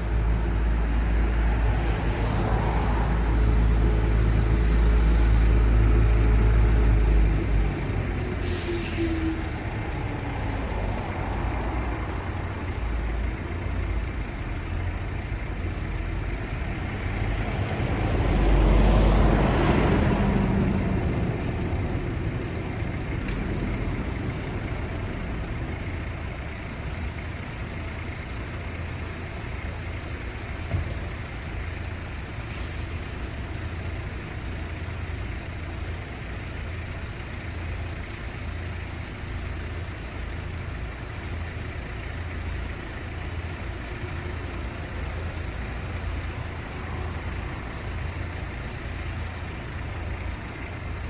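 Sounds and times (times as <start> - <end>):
heavy vehicle engine rumbling: 0.0 - 51.0
traffic hum: 0.0 - 51.0
vehicle passing by: 16.6 - 21.6.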